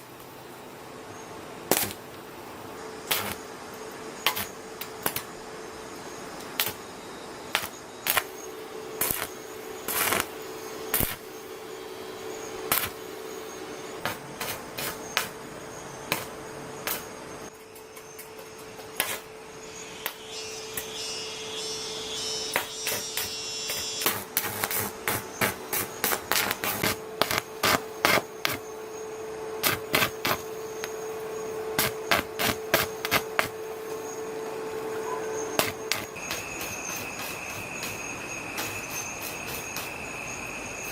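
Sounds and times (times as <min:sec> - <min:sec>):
steady hum: 0:00.0 - 0:40.9
hammer blows on metal: 0:20.0 - 0:28.2.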